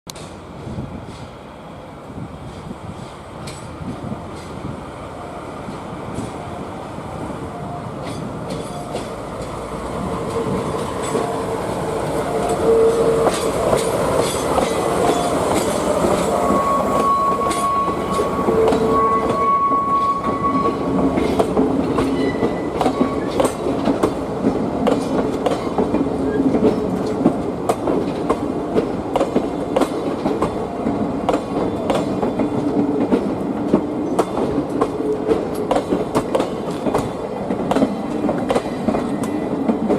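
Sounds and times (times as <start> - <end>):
high steady tone: 6.4 - 21.0.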